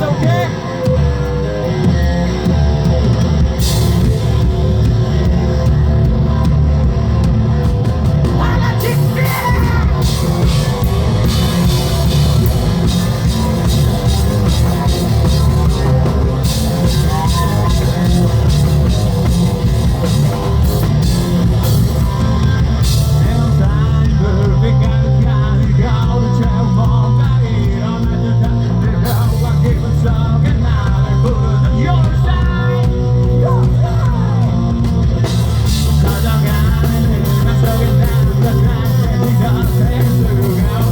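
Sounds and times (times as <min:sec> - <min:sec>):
distorted guitars: 0:00.0 - 0:40.9
drum kit: 0:00.0 - 0:40.9
hard rock band playing: 0:00.0 - 0:40.9
person singing: 0:08.3 - 0:19.4, 0:21.6 - 0:34.9, 0:35.6 - 0:40.9.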